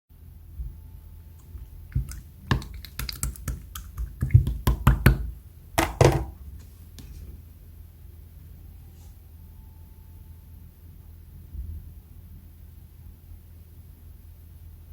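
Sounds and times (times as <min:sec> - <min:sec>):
crackly slime squish: 0:01.4 - 0:05.3
slime clicking and popping: 0:01.9 - 0:06.2.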